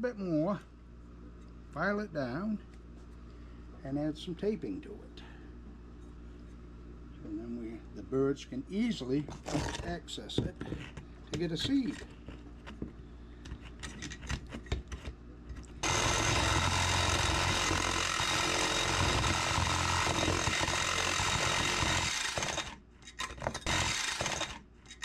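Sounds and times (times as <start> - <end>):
jigsaw cutting sheet metal: 15.8 - 25.0.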